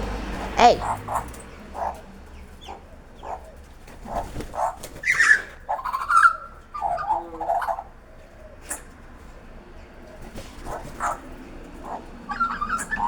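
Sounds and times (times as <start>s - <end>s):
drawn-out whining animal call: 11.0s - 13.0s.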